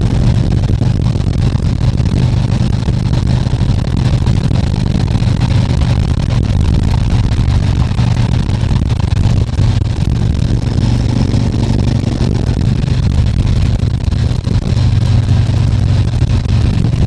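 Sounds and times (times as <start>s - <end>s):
motorcycle engine running: 0.0s - 17.0s
road noise: 0.0s - 17.0s
wind noise: 0.0s - 17.0s.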